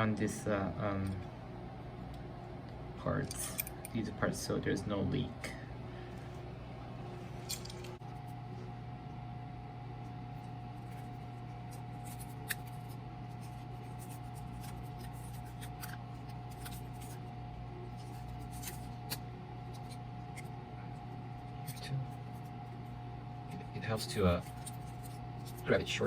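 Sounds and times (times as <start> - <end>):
steady low hum: 0.0 - 26.0
tape rubbing and rustling: 10.7 - 17.3, 24.0 - 26.0.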